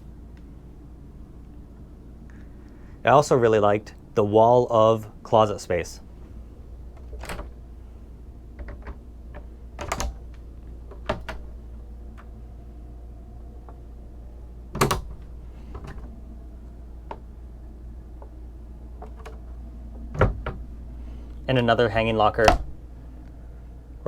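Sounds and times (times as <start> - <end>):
steady low hum: 0.0 - 24.0
door latches clicking: 6.8 - 7.7, 8.6 - 12.4, 14.7 - 16.2, 19.0 - 20.8, 22.3 - 23.0.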